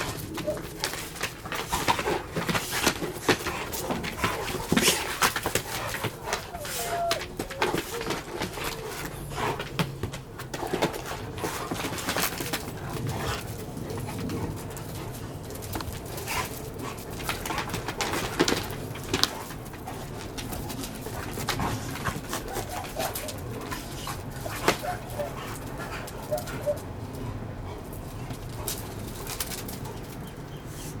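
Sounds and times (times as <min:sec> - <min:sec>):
dog whining: 0:00.0 - 0:01.0, 0:05.8 - 0:09.7, 0:22.3 - 0:25.6, 0:26.2 - 0:26.9
dogs growling low: 0:00.0 - 0:31.0
dogs scuffling: 0:00.0 - 0:31.0.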